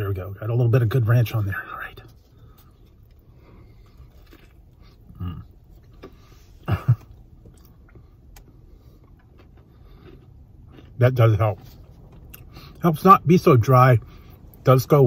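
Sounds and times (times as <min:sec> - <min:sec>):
car interior hum: 0:00.0 - 0:15.0
person chewing crunchy food: 0:02.4 - 0:12.8.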